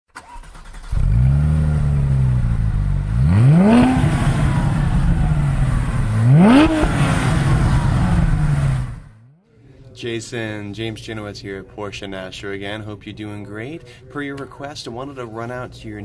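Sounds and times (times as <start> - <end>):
car engine idling and revving: 0.2 - 9.2.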